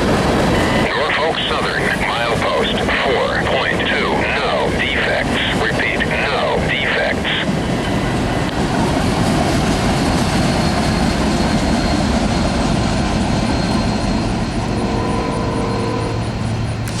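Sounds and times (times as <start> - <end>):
freight train wheels rumbling: 0.0 - 17.0
steady hum with pitched tones: 13.3 - 17.0.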